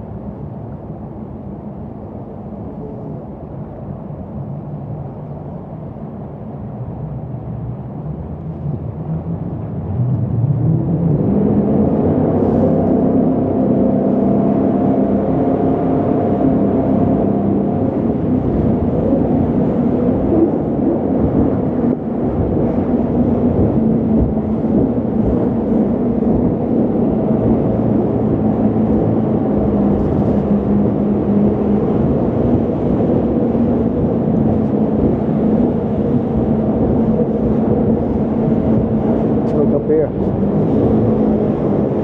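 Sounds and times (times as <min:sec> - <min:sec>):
boat engine drone: 0:00.0 - 0:42.0
rushing water and wind: 0:10.0 - 0:42.0.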